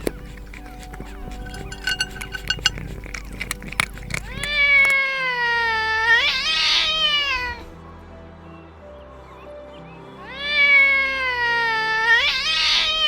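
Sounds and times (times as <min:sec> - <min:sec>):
kitten meowing: 0:04.2 - 0:07.4, 0:11.8 - 0:13.0.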